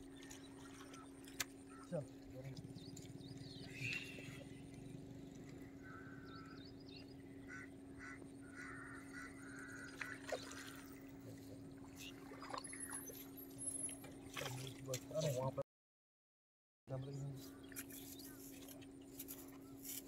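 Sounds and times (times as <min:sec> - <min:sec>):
birds calling: 0:00.0 - 0:14.8, 0:16.9 - 0:20.0
steady low hum: 0:00.0 - 0:15.6.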